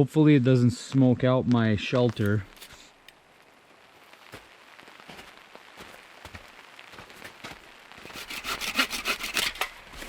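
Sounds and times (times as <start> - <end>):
hand saw cutting wet wood: 8.0 - 9.7.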